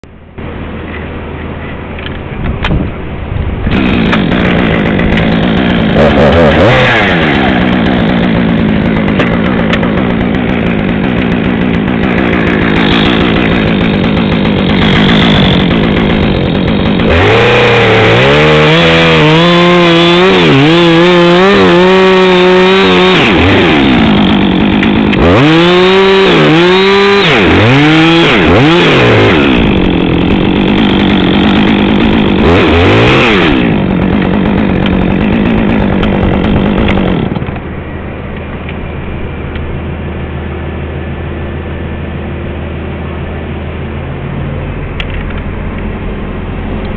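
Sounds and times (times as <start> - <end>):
chainsaw cutting wood: 3.7 - 37.7.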